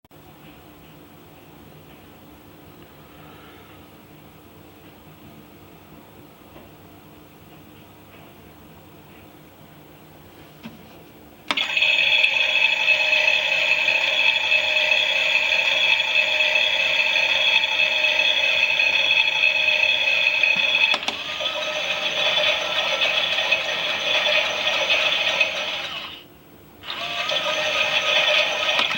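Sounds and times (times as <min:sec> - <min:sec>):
toy washing machine rattling: 0:11.6 - 0:26.1, 0:26.8 - 0:28.9.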